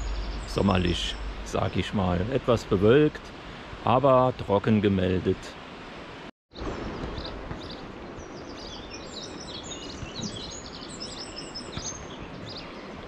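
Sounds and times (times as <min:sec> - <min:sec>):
small songbirds chirping: 0:00.0 - 0:02.0, 0:06.5 - 0:13.0.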